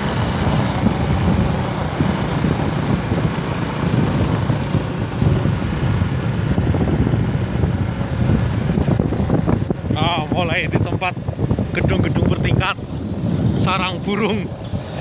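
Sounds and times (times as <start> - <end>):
motorcycle engine: 0.0 - 15.0
road noise: 0.0 - 15.0.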